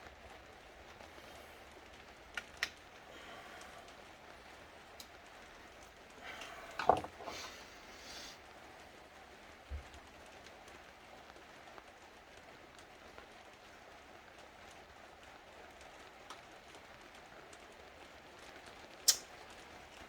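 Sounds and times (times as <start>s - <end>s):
faint room hiss: 0.0s - 20.0s.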